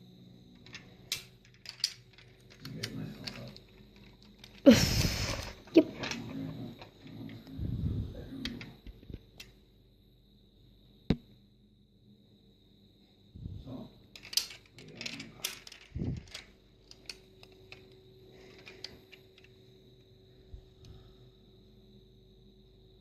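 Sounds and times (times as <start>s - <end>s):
clicks and knocks of toy cars: 0.6s - 7.5s, 14.1s - 19.6s.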